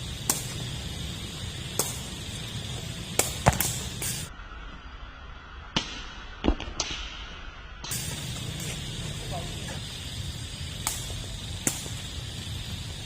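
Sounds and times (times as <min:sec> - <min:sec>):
steady background noise: 0:00.0 - 0:13.0
ball being kicked sharp smacks: 0:03.2 - 0:04.2.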